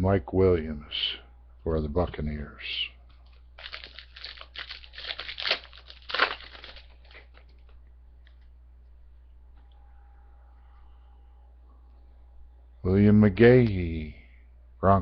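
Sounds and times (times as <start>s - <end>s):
card pack wrapper tearing: 3.6s - 7.5s.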